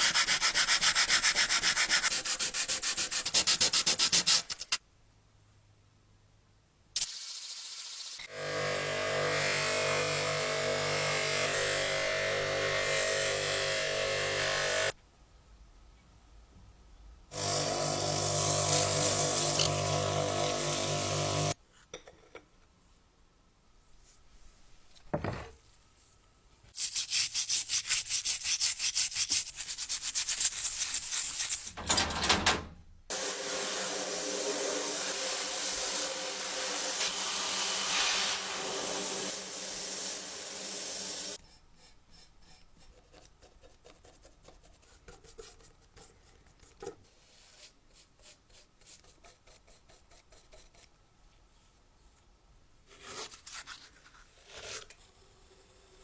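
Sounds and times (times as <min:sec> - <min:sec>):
hand sanding strokes: 0:00.0 - 0:04.4, 0:33.1 - 0:45.8
small power tool grinding: 0:08.3 - 0:14.9, 0:17.4 - 0:21.6, 0:33.1 - 0:41.4.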